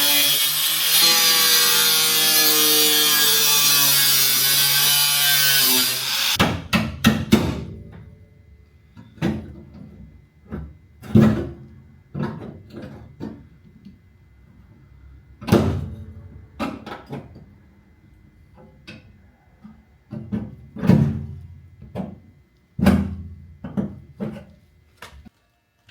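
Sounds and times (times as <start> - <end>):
power saw cutting metal: 0.0 - 6.4.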